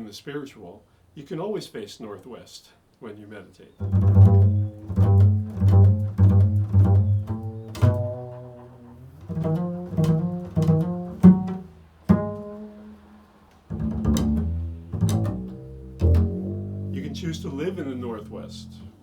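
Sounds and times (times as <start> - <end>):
low plucked string notes: 3.8 - 19.0.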